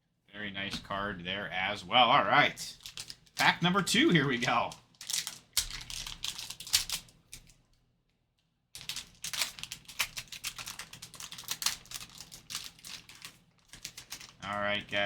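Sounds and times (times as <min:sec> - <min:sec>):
card pack wrapper crinkling: 0:02.7 - 0:07.6, 0:08.8 - 0:15.0.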